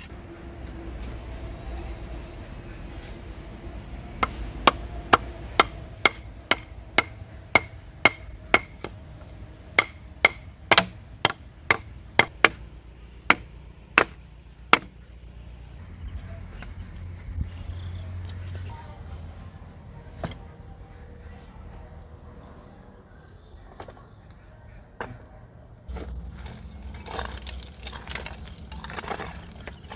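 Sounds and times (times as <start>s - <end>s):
hand tool striking wood: 4.2s - 9.0s, 9.8s - 12.6s, 13.3s - 15.0s.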